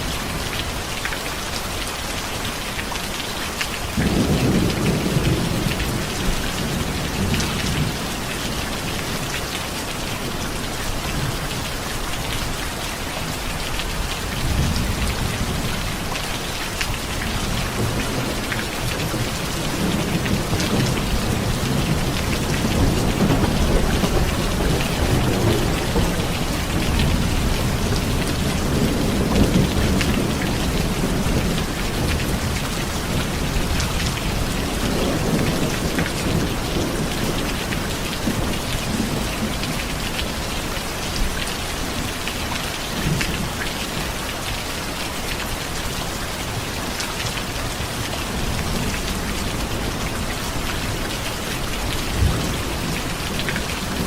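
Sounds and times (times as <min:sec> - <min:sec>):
heavy rain falling: 0:00.0 - 0:54.0
distant thunder rumble: 0:16.9 - 0:40.4.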